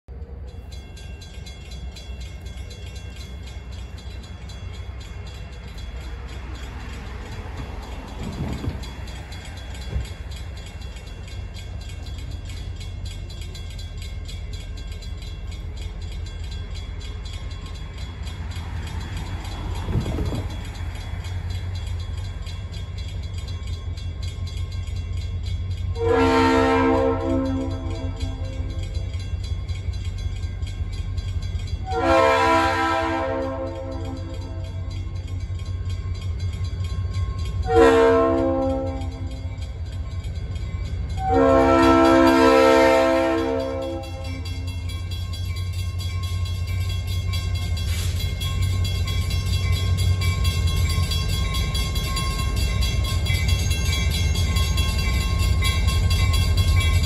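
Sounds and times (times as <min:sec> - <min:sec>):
train rumble: 0:00.0 - 0:57.0
locomotive horn blast: 0:26.0 - 0:28.6, 0:31.9 - 0:34.6, 0:37.6 - 0:39.2, 0:41.2 - 0:44.4.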